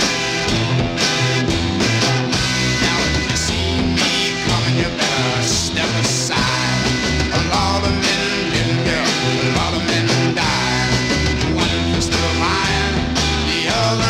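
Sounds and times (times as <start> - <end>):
bass and drums: 0.0 - 14.0
lead guitar with bending notes: 0.0 - 14.0.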